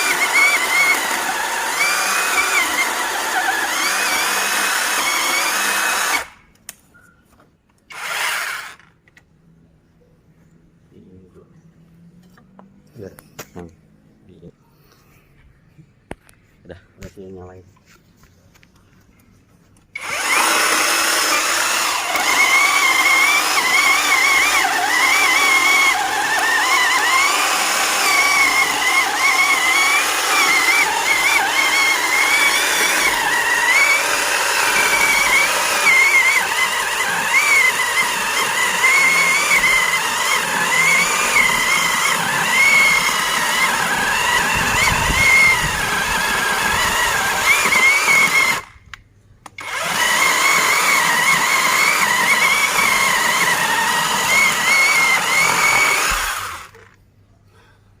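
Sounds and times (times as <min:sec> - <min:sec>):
chainsaw engine running: 0:00.0 - 0:06.3, 0:07.9 - 0:08.8, 0:20.0 - 0:48.7, 0:49.6 - 0:56.9.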